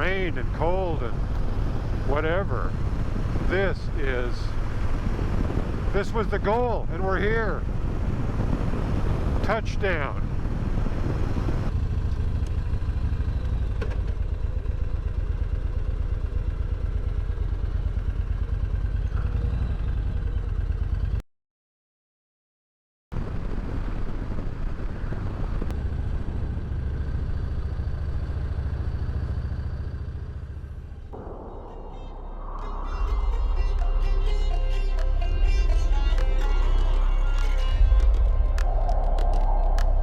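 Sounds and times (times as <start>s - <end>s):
road and wind noise: 0.0s - 21.2s, 23.2s - 40.0s
motorcycle engine running: 10.3s - 21.2s, 25.5s - 31.4s.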